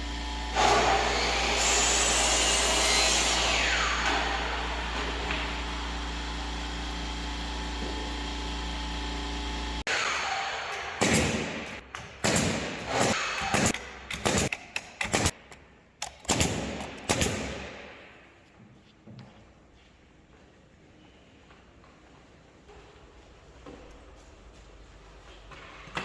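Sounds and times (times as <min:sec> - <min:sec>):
power tool running: 0:00.0 - 0:11.0.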